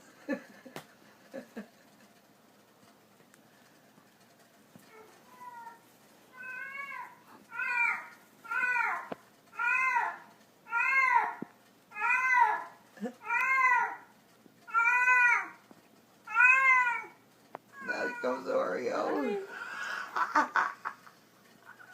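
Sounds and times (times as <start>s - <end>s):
cat meowing: 5.3s - 9.0s, 9.6s - 14.0s, 14.7s - 15.6s, 16.3s - 17.2s, 17.8s - 19.6s.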